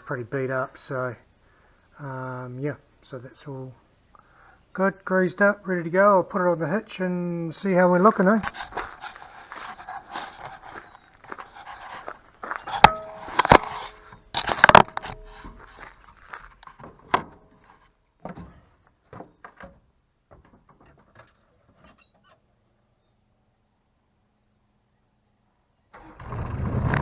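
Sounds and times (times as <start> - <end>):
metallic ringing: 12.6 - 15.6
metal clanks and knocks: 12.6 - 15.9.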